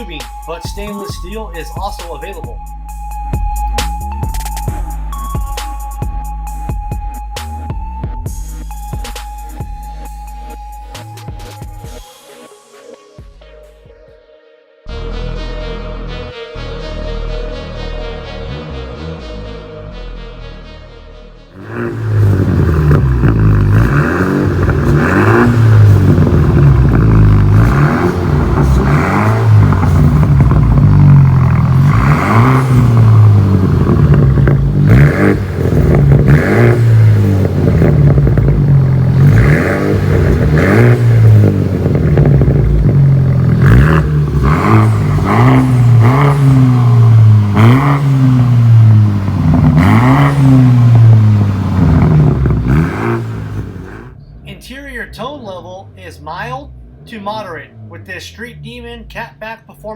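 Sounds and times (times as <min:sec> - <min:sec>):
car engine revving: 0:21.6 - 0:59.9.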